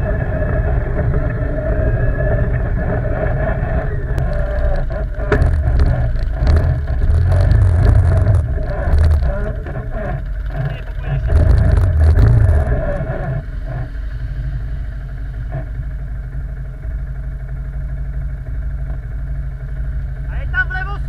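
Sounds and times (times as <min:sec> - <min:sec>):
quad engine revving: 0:00.0 - 0:16.2.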